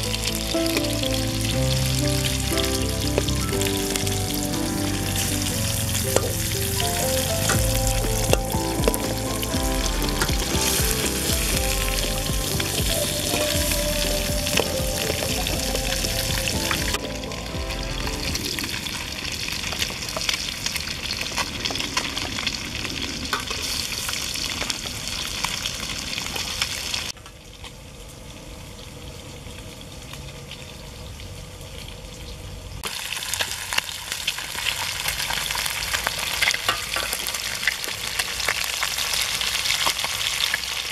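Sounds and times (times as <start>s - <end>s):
fish sizzling in hot oil: 0.0s - 13.4s, 32.8s - 40.9s
music: 0.0s - 18.7s.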